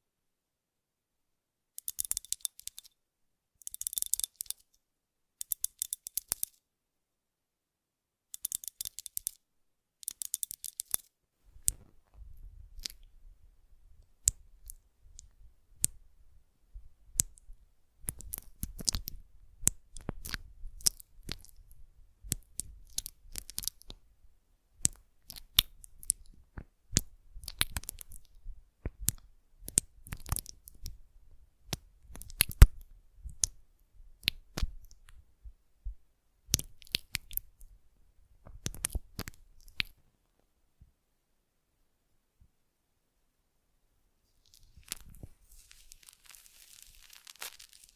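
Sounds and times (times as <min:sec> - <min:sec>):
clicks from objects handled: 0:01.8 - 0:02.9
crinkly crackles: 0:44.3 - 0:47.9.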